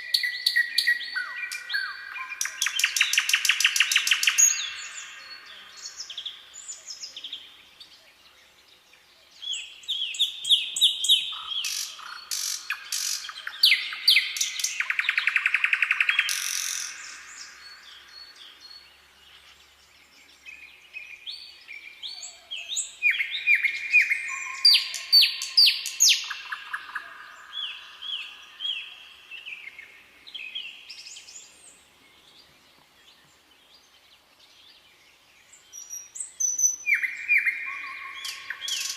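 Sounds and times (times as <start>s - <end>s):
songbirds chirping and whistling: 0.0s - 38.9s.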